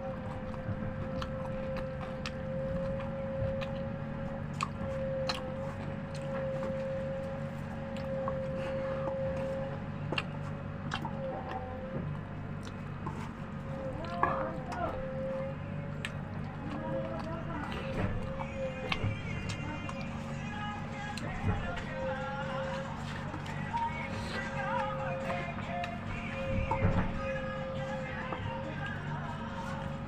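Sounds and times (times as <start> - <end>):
person chewing food: 0.0 - 30.0
steady background hum: 0.0 - 30.0
mouth clicks and smacks: 0.5 - 14.2.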